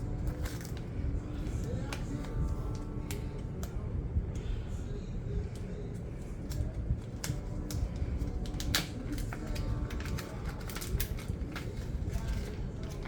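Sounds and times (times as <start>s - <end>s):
plastic wrapping crinkling and tearing: 0.0s - 3.3s, 6.2s - 13.0s
low steady rumble: 0.0s - 13.0s.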